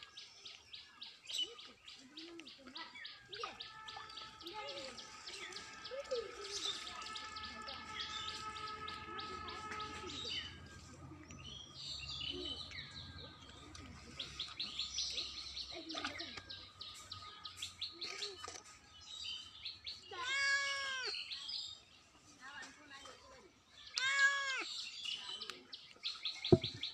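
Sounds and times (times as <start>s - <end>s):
small birds chirping: 0.0s - 26.9s
cat meowing: 20.2s - 21.1s, 23.9s - 24.7s.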